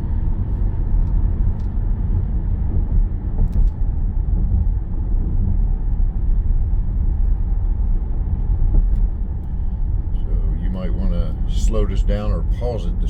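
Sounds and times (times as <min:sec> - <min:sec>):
car tyre and road noise: 0:00.0 - 0:13.0.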